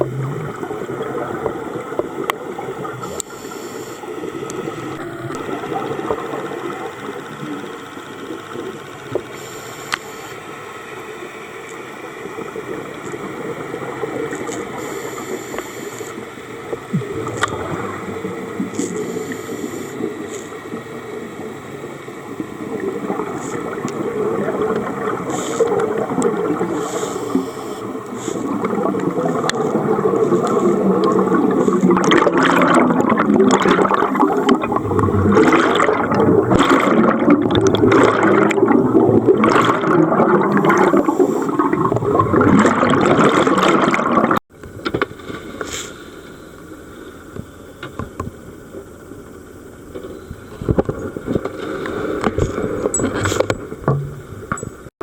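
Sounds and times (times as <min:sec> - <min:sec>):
underwater hiss: 0:00.0 - 0:07.6, 0:09.2 - 0:10.7, 0:14.0 - 0:21.5, 0:23.0 - 0:43.7, 0:45.2 - 0:47.2
regulator bubbles gurgling: 0:00.0 - 0:44.6.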